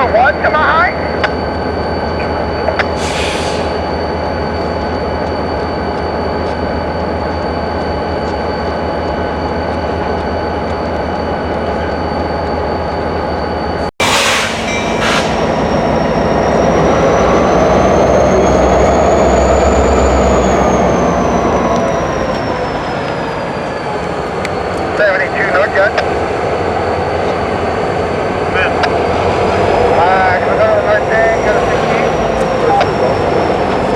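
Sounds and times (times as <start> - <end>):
diesel locomotive engine drone: 0.0 - 33.9
high whine: 13.3 - 26.1, 28.2 - 33.9
deep rumble: 14.0 - 25.4.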